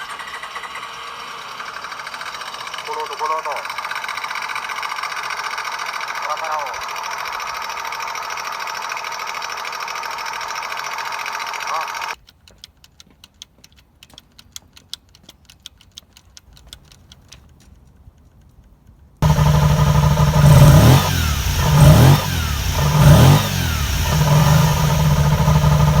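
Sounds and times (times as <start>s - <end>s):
motorcycle engine revving: 0.0s - 12.2s, 19.2s - 26.0s.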